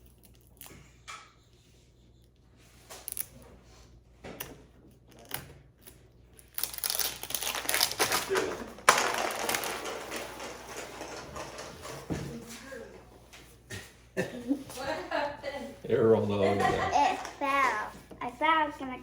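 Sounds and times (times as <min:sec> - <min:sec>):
wrapper crinkling: 0:06.5 - 0:11.1.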